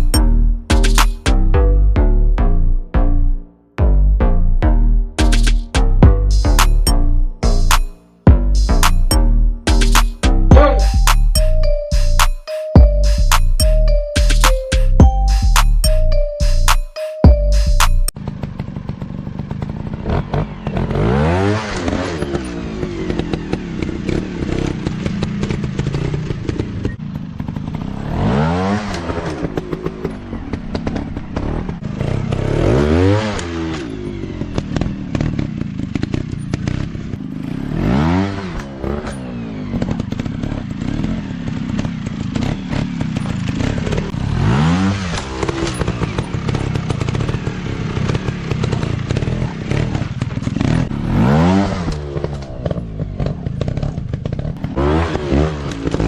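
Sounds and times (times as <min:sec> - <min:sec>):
dirt bike engines revving: 0:18.3 - 0:56.0.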